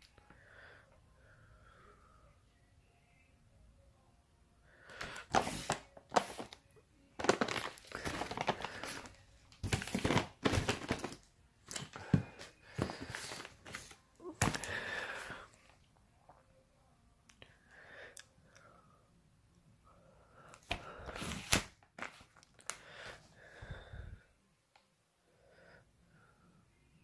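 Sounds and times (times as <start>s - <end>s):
packaging rustling and crinkling: 5.0s - 6.6s, 7.2s - 14.9s.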